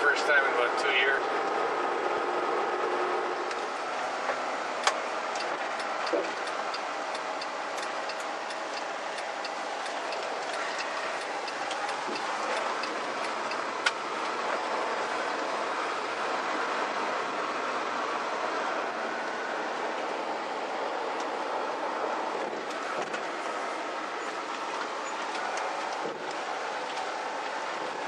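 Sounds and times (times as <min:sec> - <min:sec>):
car road noise on gravel: 0:00.0 - 0:28.0
sharp clicks: 0:04.8 - 0:14.0.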